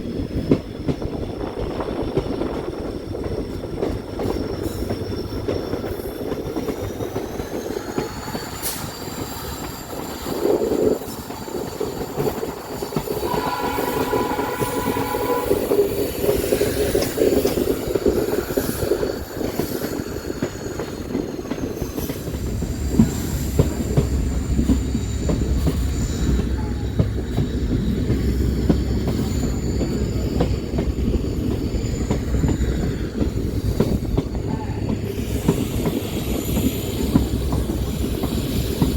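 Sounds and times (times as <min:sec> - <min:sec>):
train rattling on rails: 0:00.0 - 0:38.9
high wheel squeal: 0:03.6 - 0:38.9
train horn blast: 0:13.2 - 0:16.0.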